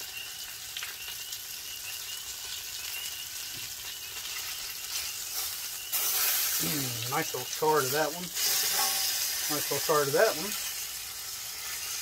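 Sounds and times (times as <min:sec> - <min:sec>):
chicken wings sizzling in a pan: 0:00.0 - 0:12.0
tongs turning meat: 0:04.1 - 0:12.0.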